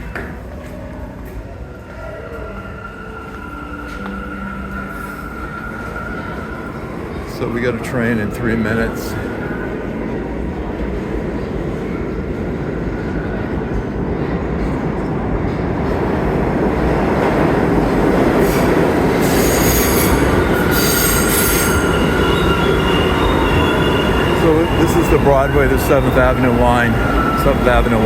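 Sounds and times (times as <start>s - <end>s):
steel wheels squealing on rails: 0.0s - 10.2s, 17.8s - 28.0s
subway train rumble: 0.0s - 28.0s.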